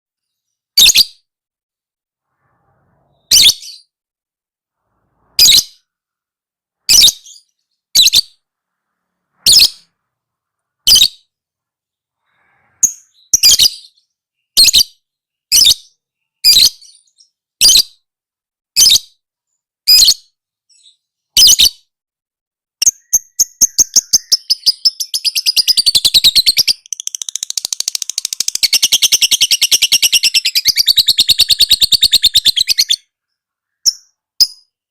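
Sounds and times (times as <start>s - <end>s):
lovebird chirping and chattering: 0.3s - 1.3s, 3.0s - 4.0s, 5.2s - 5.9s, 6.9s - 8.5s, 9.4s - 10.0s, 10.8s - 11.3s, 12.2s - 18.0s, 19.9s - 21.9s, 22.8s - 34.9s.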